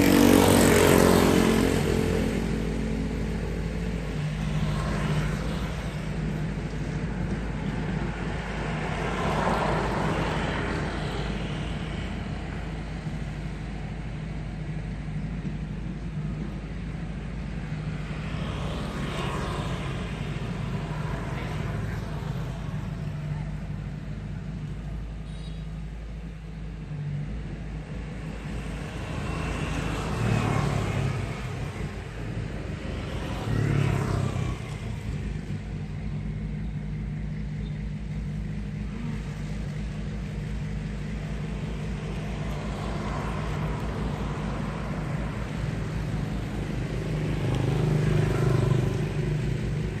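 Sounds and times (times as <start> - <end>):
bulldozer diesel engine rumbling: 0.0 - 50.0.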